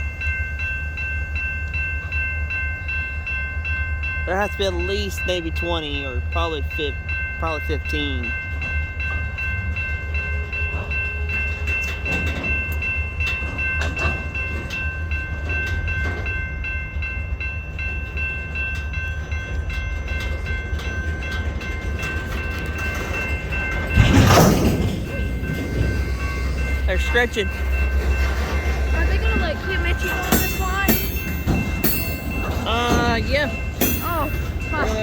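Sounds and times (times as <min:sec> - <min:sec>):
clicks and knocks from train cars: 0:10.7 - 0:16.4, 0:18.4 - 0:35.0.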